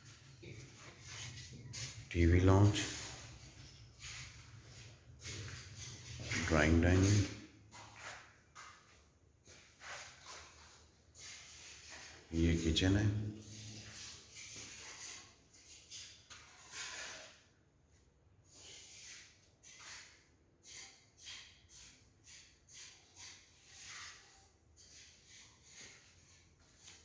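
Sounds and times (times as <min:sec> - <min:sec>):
footsteps on concrete floor: 0:00.0 - 0:12.2, 0:23.2 - 0:27.0.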